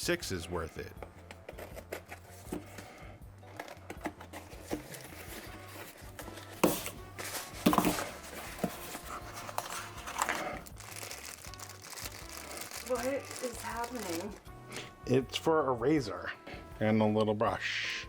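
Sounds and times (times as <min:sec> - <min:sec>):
package clicks and rustles: 0:06.6 - 0:14.4.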